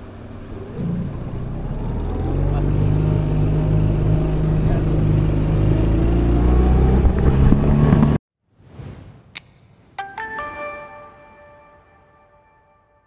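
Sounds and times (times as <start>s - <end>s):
motor engine running loudly: 0.0s - 8.2s
ringing chime-like tones: 10.0s - 13.0s.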